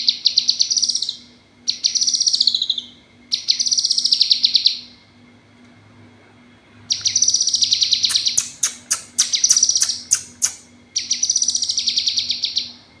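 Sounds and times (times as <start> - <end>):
bird trilling call: 6.9 - 12.7
sharp bird notes: 6.9 - 12.7.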